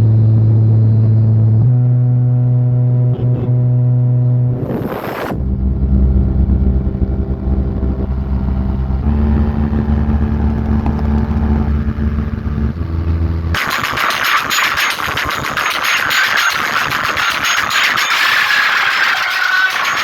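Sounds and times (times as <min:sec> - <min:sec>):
loud distorted deep bass notes: 0:00.0 - 0:20.0
harsh rapid rattling burst: 0:13.6 - 0:20.0.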